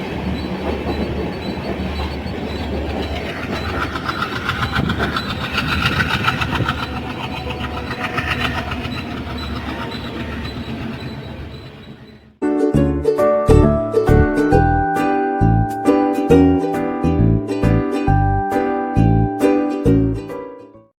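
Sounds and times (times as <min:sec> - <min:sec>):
train wheels clattering over rail joints: 0:00.0 - 0:12.3.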